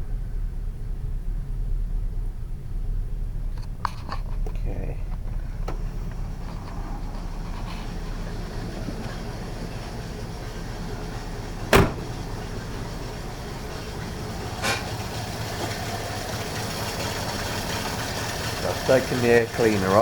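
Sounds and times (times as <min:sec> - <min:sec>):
car engine idling: 0:00.0 - 0:20.0
sharp engine knock: 0:11.6 - 0:12.5.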